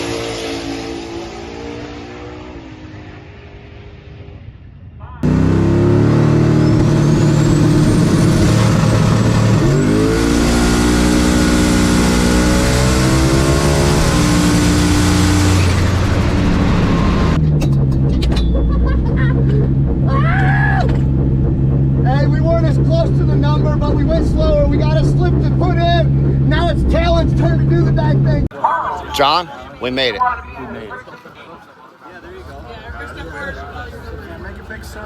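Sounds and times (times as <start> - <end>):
drag car engine at full throttle: 0.0 - 4.1, 5.2 - 28.5.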